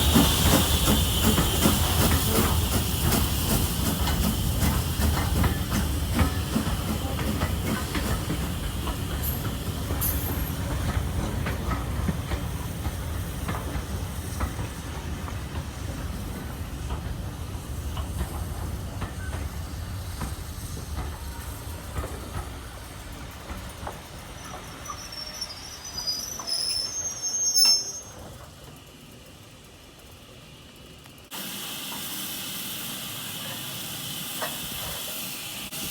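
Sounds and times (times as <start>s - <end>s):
wheels clicking over rail joints: 0.0s - 25.4s
train rumbling on rails: 0.0s - 35.9s.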